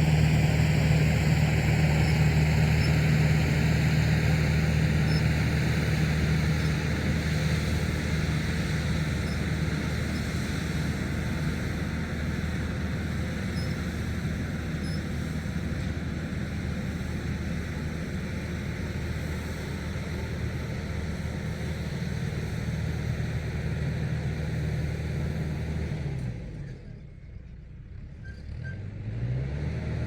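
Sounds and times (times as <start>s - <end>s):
tractor engine running: 0.0s - 26.6s.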